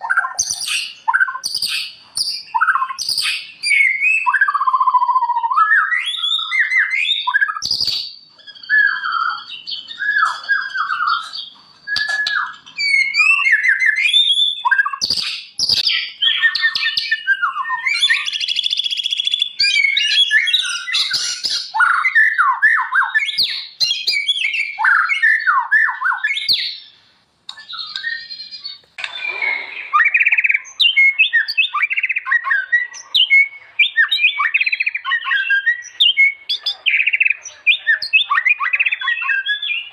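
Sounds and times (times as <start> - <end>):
songbird singing whistles and trills: 0.0 - 39.9.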